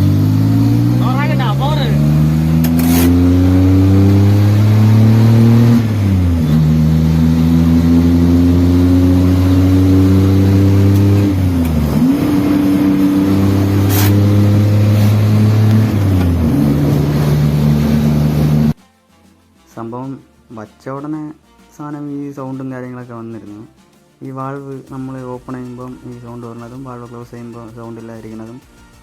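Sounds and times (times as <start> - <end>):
loud car engine revving: 0.0 - 18.8.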